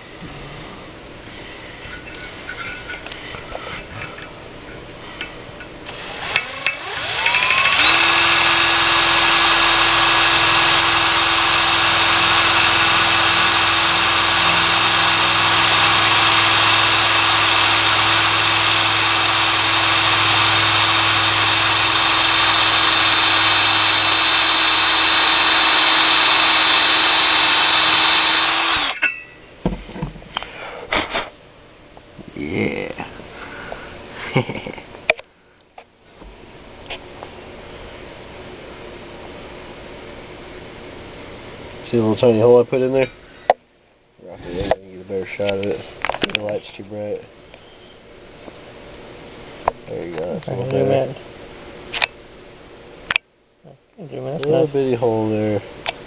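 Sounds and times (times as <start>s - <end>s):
power drill running: 5.8s - 29.0s.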